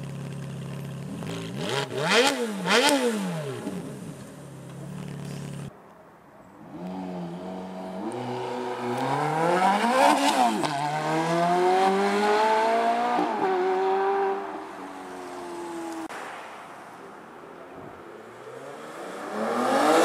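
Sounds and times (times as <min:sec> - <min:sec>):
sports car engine accelerating: 0:06.7 - 0:14.4.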